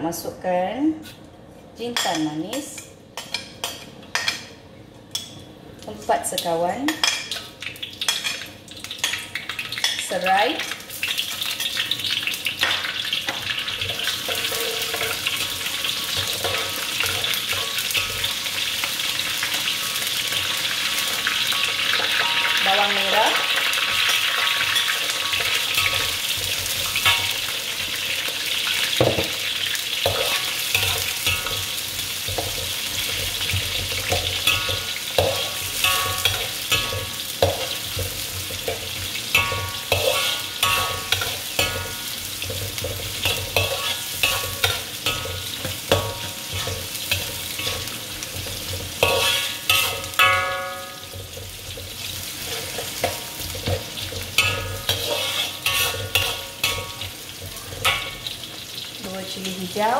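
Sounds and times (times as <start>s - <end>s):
onion frying in hot oil: 5.1s - 59.9s
utensil scraping a pan: 13.8s - 18.5s, 30.1s - 58.3s.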